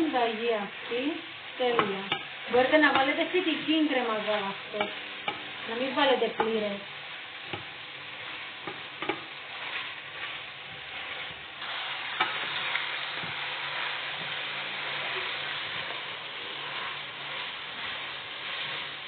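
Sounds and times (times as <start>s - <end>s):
vegetables and meat sizzling in a pan: 0.0s - 19.0s
utensil knocking against a pan: 1.8s - 2.3s, 6.3s - 6.6s, 8.6s - 9.3s.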